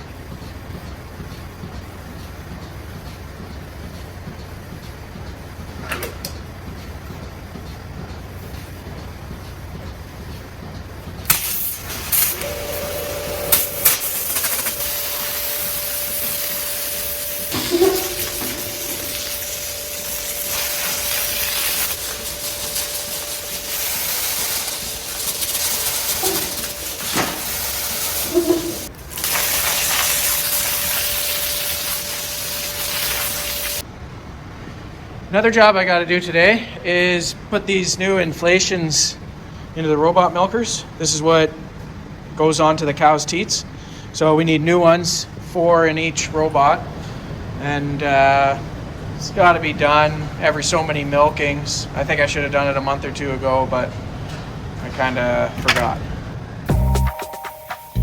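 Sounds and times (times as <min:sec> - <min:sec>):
water pump whining: 0:00.0 - 0:33.9
water hissing through pipes: 0:11.2 - 0:33.9.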